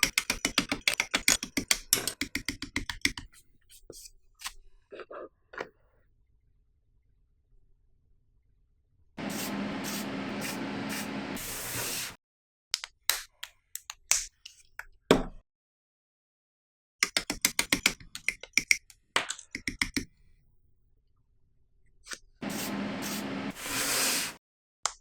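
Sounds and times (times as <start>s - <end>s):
spray hiss: 9.2s - 12.2s, 22.4s - 24.4s.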